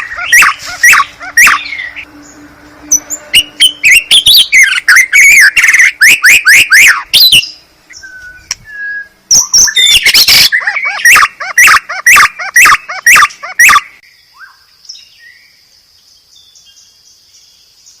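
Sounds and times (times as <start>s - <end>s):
bird song with sweeping notes: 0.0s - 11.4s, 12.0s - 18.0s
soft bird whistles: 8.0s - 10.4s.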